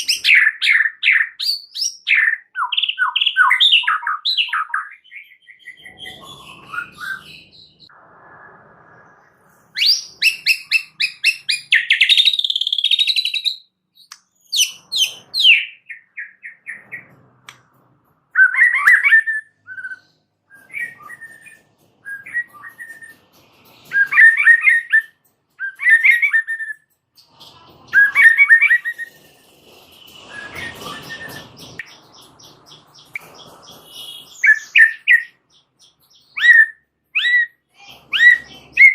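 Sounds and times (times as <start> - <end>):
songbird singing: 23.8 - 38.9.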